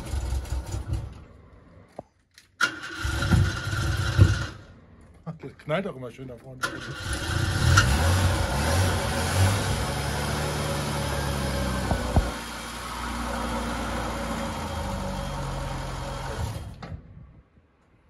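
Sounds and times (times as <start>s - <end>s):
old car engine running: 0.0s - 1.9s, 2.6s - 4.7s, 6.6s - 16.6s
engine backfire pops: 3.0s - 4.6s, 11.8s - 12.4s.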